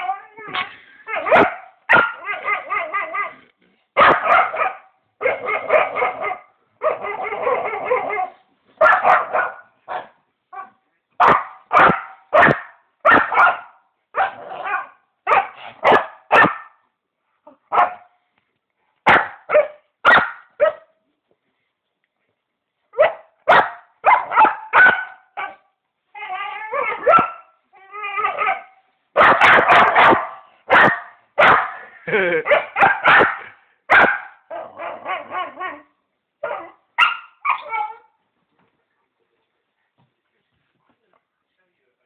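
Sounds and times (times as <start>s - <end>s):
dog barking: 1.2s - 2.8s, 4.0s - 16.8s, 17.7s - 18.1s, 19.0s - 20.9s, 23.0s - 25.7s, 26.9s - 27.5s, 28.4s - 31.8s, 32.4s - 35.6s, 36.4s - 37.7s.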